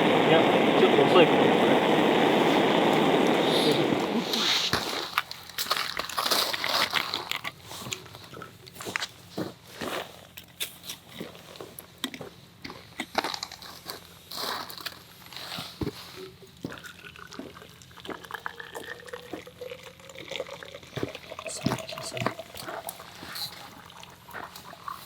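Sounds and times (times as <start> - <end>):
hot water pouring into bottle: 0.0 - 7.1, 16.7 - 25.0
clicks and crackles: 0.1 - 9.2.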